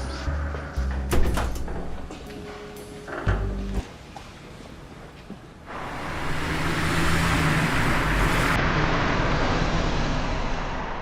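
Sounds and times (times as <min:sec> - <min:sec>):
road traffic noise: 0:05.7 - 0:11.0.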